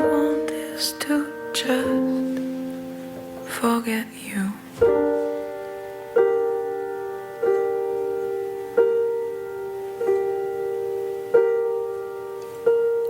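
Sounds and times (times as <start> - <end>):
piano chord ringing: 0.0 - 13.0.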